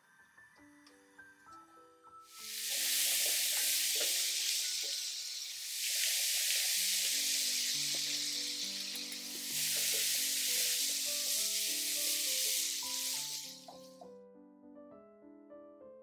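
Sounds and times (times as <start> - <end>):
soft piano music: 0.0 - 16.0
mushrooms sizzling in a pan: 2.3 - 13.9
light stirring clicks: 8.8 - 9.4.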